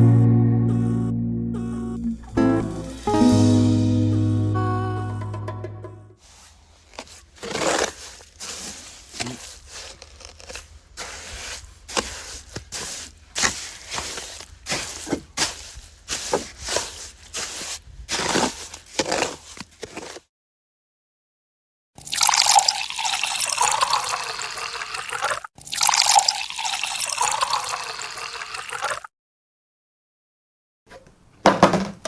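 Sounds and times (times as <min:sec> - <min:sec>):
low steady hum: 0:00.0 - 0:06.1.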